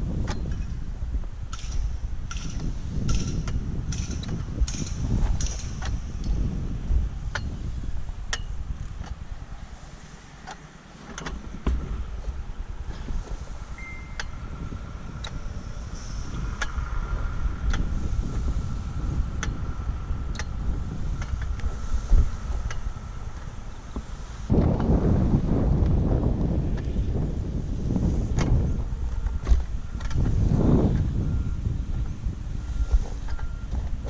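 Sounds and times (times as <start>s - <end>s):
faint steady whine: 0.0s - 34.0s
wind buffeting microphone: 0.0s - 34.0s.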